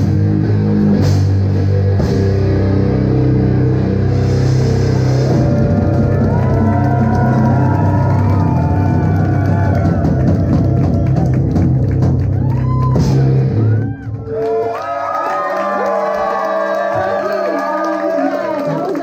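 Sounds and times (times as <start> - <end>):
rock band playing loud: 0.0 - 14.0.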